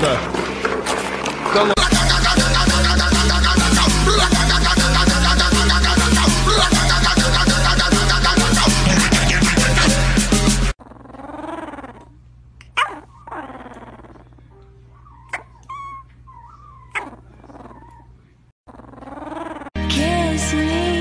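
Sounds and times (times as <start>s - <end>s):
puppy whimpering in sleep: 10.8s - 19.8s.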